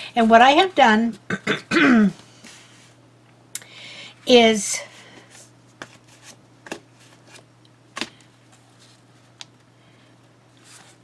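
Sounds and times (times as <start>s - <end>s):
paper rustling: 10.6s - 11.0s.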